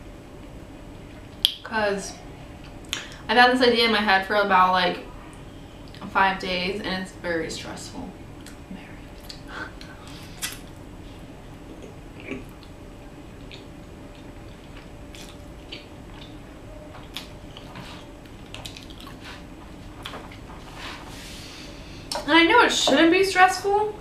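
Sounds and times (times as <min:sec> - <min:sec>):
low room hum: 0:00.0 - 0:24.0
person chewing food: 0:11.4 - 0:20.7.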